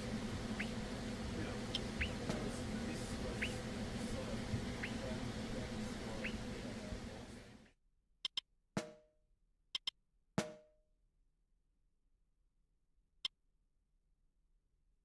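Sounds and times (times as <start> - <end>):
sharp percussion clicks: 9.8 - 10.0.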